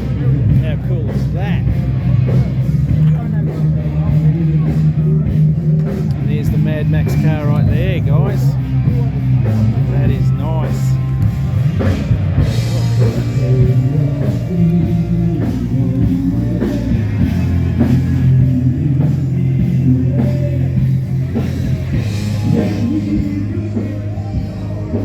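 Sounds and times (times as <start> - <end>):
live rock band playing: 0.0 - 25.0
person singing: 12.6 - 25.0.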